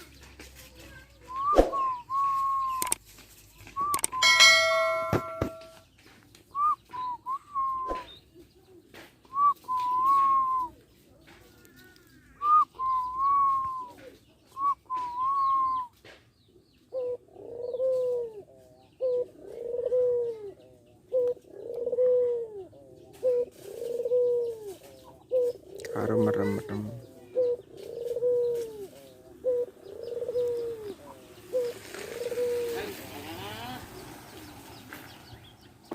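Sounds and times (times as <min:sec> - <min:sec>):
dove cooing: 0:03.8 - 0:05.7, 0:11.5 - 0:16.0, 0:16.8 - 0:34.5.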